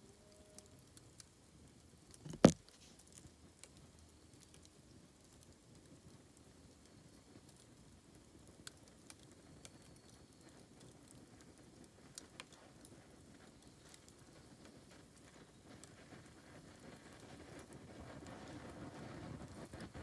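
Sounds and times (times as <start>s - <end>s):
bonfire crackling: 0.1s - 20.0s
sharp pops: 2.2s - 2.7s.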